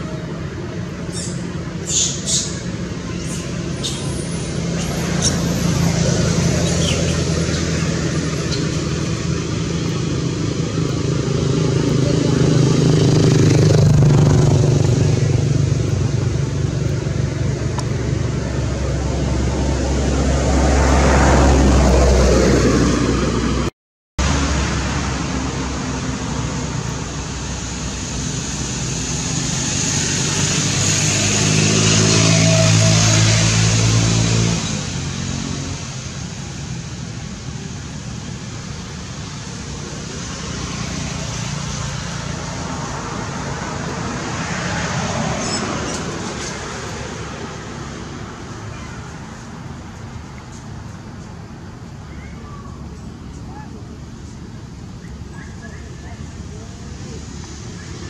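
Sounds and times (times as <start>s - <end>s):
vehicle engine running: 0.0s - 21.3s
road traffic rushing: 0.0s - 58.0s
vehicle engine drone: 0.0s - 58.0s
brief high squeaks: 1.1s - 2.6s.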